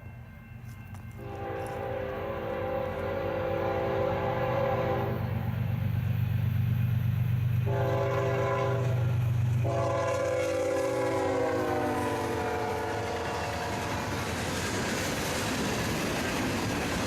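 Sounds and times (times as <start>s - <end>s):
locomotive engine rumble: 0.0s - 17.0s
locomotive air horn: 1.2s - 5.4s, 7.6s - 14.2s.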